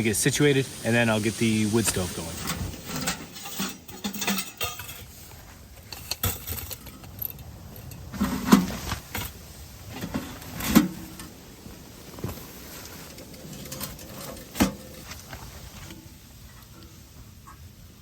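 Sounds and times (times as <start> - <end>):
camping gear clicks and rattles: 2.0 - 16.9.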